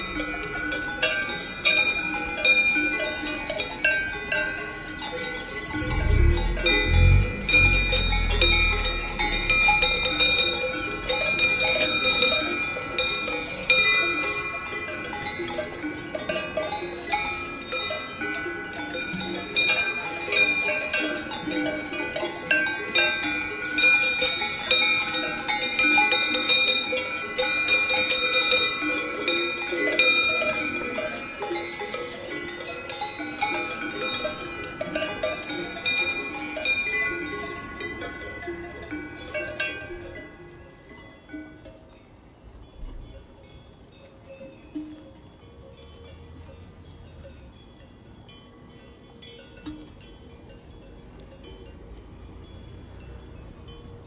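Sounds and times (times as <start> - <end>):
cowbells clanking: 0.0 - 54.0
low rumble: 5.7 - 11.6.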